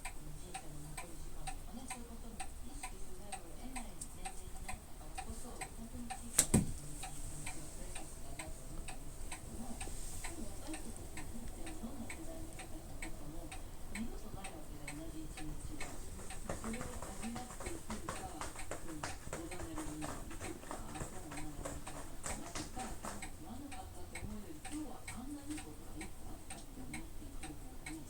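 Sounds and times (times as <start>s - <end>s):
regular ticking: 0.0s - 28.0s.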